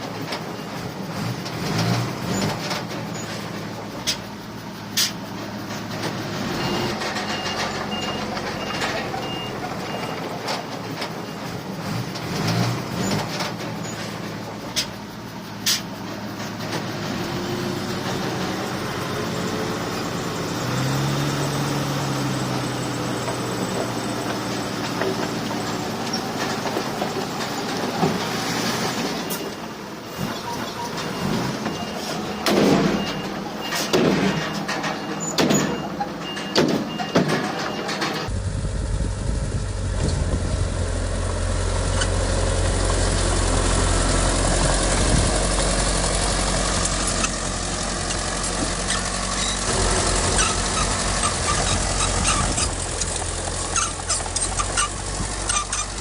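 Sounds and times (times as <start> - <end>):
diesel machinery running: 0.0 - 56.0
loud metallic clanks: 24.2 - 38.3, 46.3 - 56.0.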